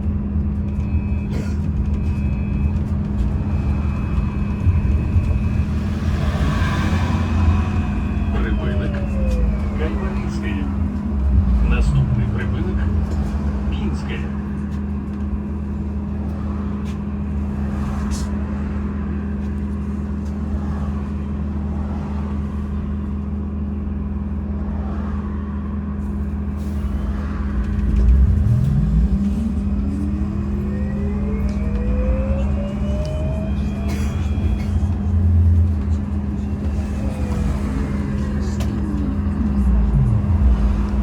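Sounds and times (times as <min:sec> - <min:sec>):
trolleybus electric hum: 0:00.0 - 0:41.0
electric drive whine rising: 0:01.8 - 0:15.6, 0:27.0 - 0:41.0.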